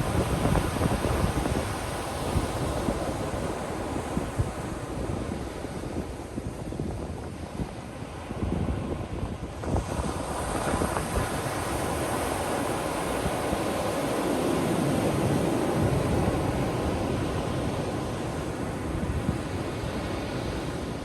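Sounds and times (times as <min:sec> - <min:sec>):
ocean surf breaking on beach: 0:00.0 - 0:21.0.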